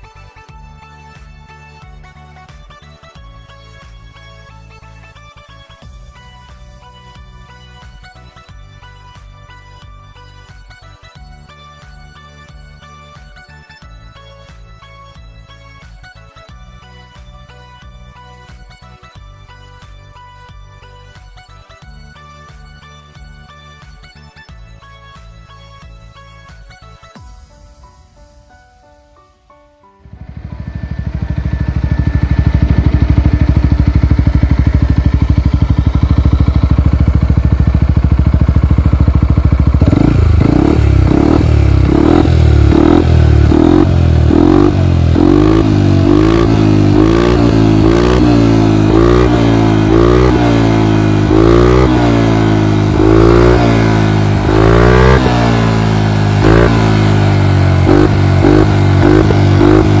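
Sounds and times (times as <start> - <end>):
scooter engine revving: 30.0 - 60.0.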